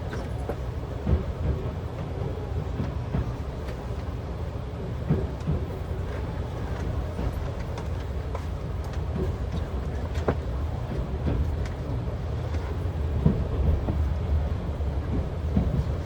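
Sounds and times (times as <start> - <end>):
train low rumble: 0.0 - 16.0.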